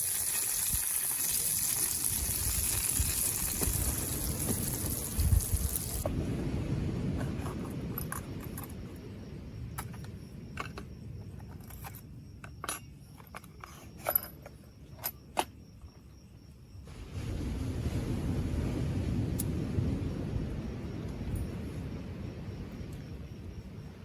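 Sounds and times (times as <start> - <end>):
small hard objects clicking: 0.0 - 6.0.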